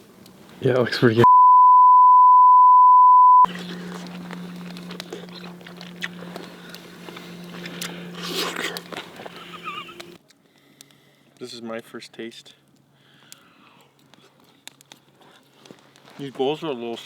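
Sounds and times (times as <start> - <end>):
person chewing noodles: 3.4 - 10.2
steady low hum: 3.4 - 10.2.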